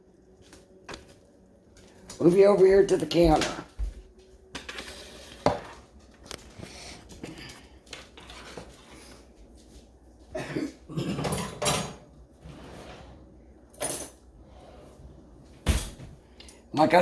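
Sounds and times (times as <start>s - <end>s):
dishes and cutlery clinking: 11.0s - 12.1s
dishes bumping and scraping: 11.0s - 12.1s.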